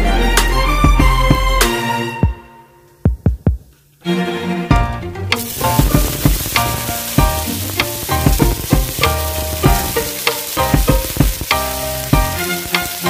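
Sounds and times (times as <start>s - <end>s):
instrumental music: 0.0s - 13.0s
food sizzling in hot oil: 5.4s - 13.0s
sharp ticks: 5.4s - 13.0s.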